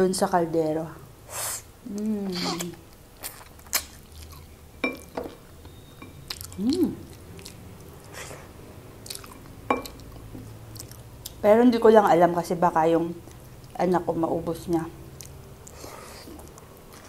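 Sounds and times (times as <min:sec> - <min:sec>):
lip smacks: 0:02.4 - 0:04.4
wet chewing: 0:02.4 - 0:04.6, 0:06.3 - 0:11.4, 0:15.1 - 0:17.0.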